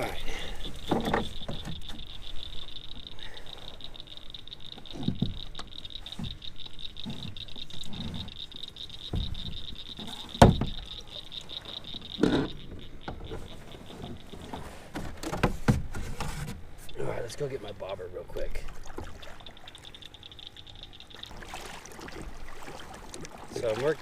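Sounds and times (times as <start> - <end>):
chorus of frogs calling: 0.0 - 14.9, 16.9 - 24.0
gear thumping against canoe: 0.4 - 2.2, 9.0 - 11.0, 11.8 - 17.0
paddle knocking on canoe: 9.0 - 11.0.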